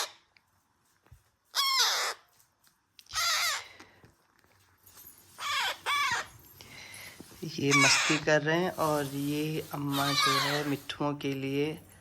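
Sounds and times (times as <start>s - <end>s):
parrot harsh calls: 0.0s - 0.3s, 1.5s - 2.3s, 3.1s - 3.7s, 5.4s - 6.4s, 7.7s - 8.3s, 9.7s - 10.9s.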